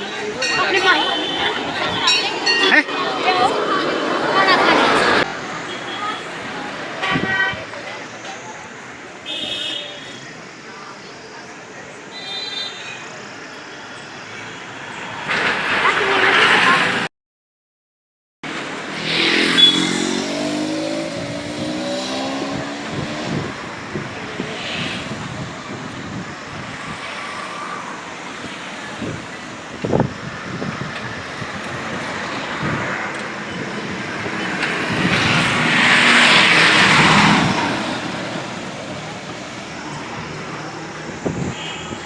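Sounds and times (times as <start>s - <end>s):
vehicle passing close: 0.0s - 5.6s, 18.6s - 41.6s
distant voices: 0.0s - 12.1s, 12.8s - 17.1s, 20.2s - 42.0s
road traffic noise: 0.0s - 17.1s, 18.4s - 42.0s.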